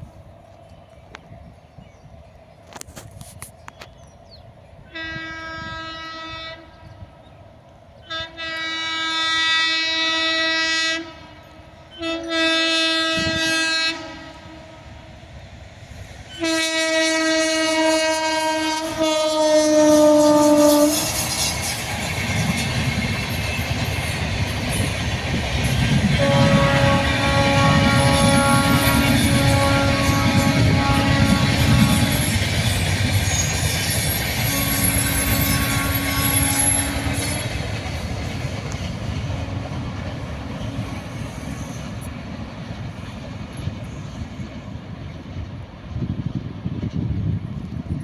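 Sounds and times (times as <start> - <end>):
train wheels rumbling on rails: 0.0 - 48.0
train horn blasts: 4.8 - 7.1, 8.0 - 15.2, 16.3 - 21.5, 26.1 - 37.7, 38.6 - 42.1.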